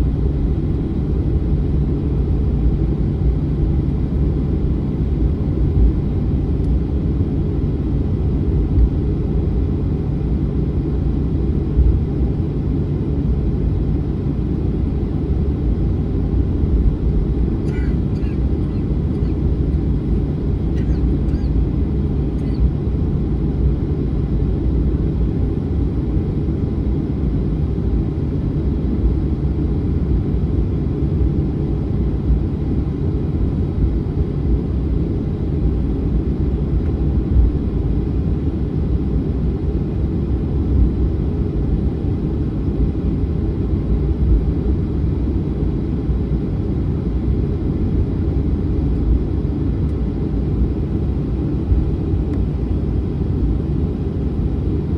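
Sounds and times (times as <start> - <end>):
jet engines rumbling: 1.8 - 24.6, 47.1 - 54.9.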